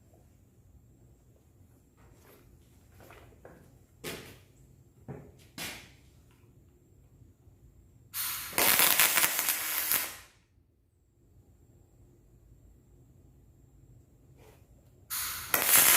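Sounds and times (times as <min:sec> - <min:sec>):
welding arc crackling: 0:08.2 - 0:10.3, 0:15.1 - 0:15.9.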